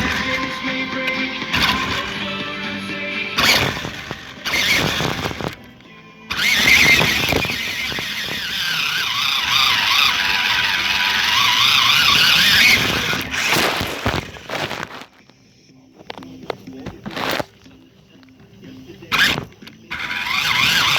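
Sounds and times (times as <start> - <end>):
rough rushing noise: 0.0 - 5.6, 6.3 - 15.1
toy car electric motor whining: 0.0 - 15.2, 16.1 - 17.8, 18.8 - 20.9.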